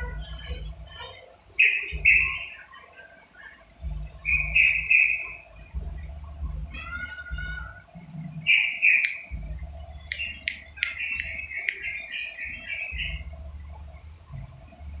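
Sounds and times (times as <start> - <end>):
low rumble: 0.0 - 1.1, 3.7 - 8.5, 9.3 - 11.5, 12.5 - 15.0
bird singing bubbly chirps: 1.6 - 7.8, 8.4 - 14.0.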